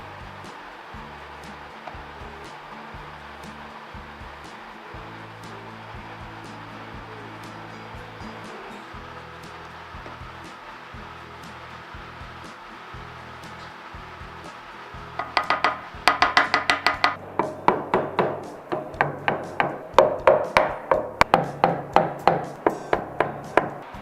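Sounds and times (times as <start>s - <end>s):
hammer knocking wooden dowels: 15.2s - 23.8s.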